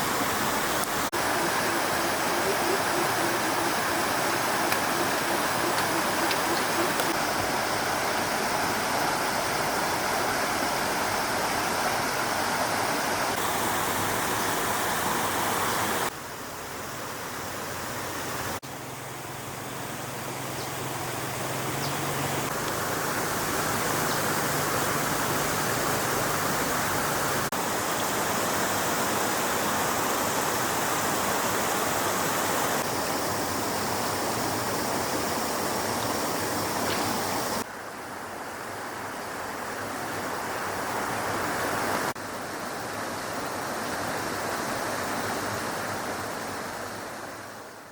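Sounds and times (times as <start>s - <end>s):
stream water rushing: 0.0s - 47.9s.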